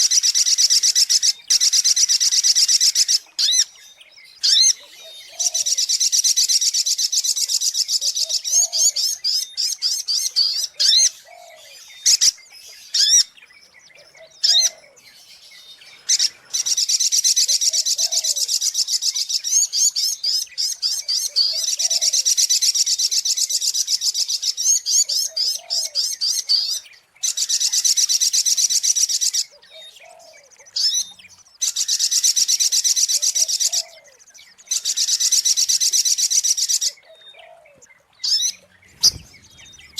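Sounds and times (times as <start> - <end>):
sharp bird chirps: 31.8 - 39.9.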